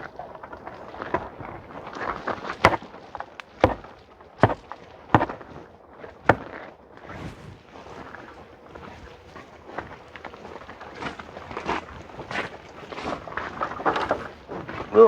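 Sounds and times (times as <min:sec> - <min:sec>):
sharp wooden knocks: 0:03.6 - 0:03.8, 0:04.4 - 0:04.6, 0:05.2 - 0:05.4.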